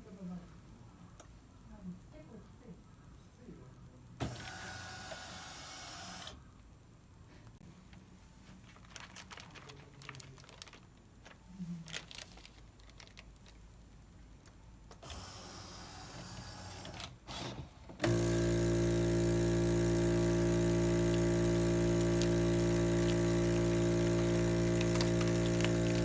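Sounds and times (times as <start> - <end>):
vacuum sealer pump hum: 4.2 - 6.4, 15.0 - 26.0
plastic bag rustling and clicks: 7.9 - 13.6, 21.1 - 26.0.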